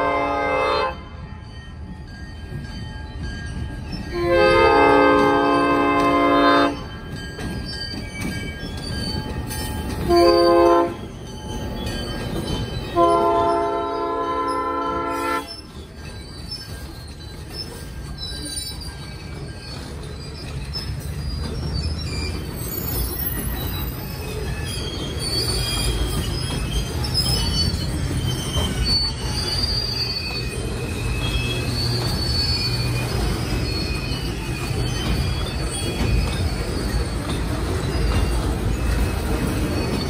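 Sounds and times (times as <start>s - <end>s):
locomotive horn chord: 0.0s - 1.1s, 4.2s - 6.8s, 10.1s - 11.0s, 13.0s - 15.5s
train rolling by with rumble: 0.0s - 40.0s
wheel flanges squealing: 1.4s - 40.0s.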